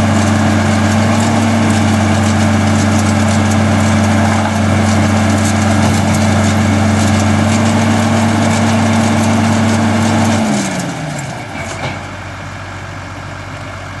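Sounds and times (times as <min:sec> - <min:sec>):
hay baler machinery winding down: 0:00.0 - 0:14.0
tractor running: 0:00.0 - 0:14.0.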